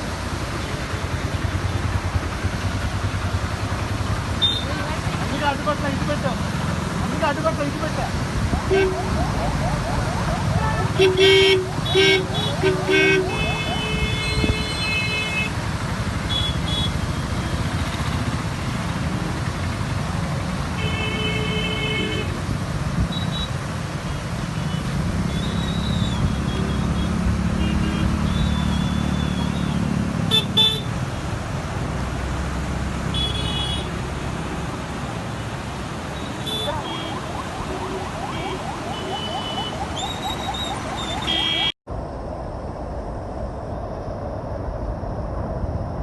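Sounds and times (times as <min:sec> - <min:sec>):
vehicle horn honking: 0:10.8 - 0:15.5.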